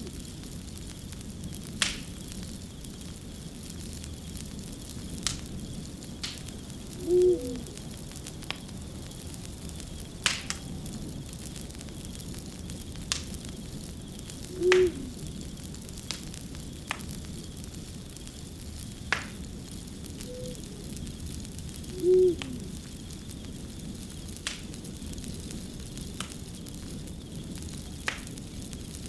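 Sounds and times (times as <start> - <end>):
wood fire crackling: 0.0 - 29.0
hoot with falling tail: 7.0 - 7.9, 14.5 - 15.2, 20.2 - 21.1, 21.8 - 22.8.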